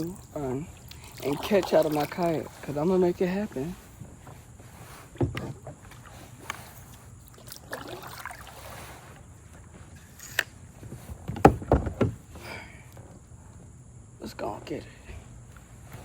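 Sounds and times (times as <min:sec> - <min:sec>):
paddle strokes splashing: 0:00.0 - 0:09.8.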